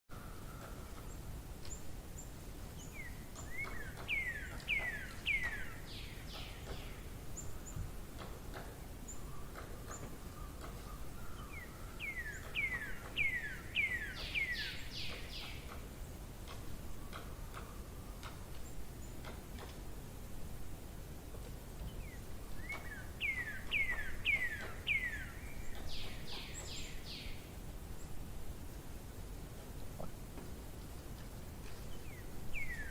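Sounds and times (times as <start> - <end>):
songbird singing: 0.1 - 32.9
low outdoor rumble: 14.8 - 32.9.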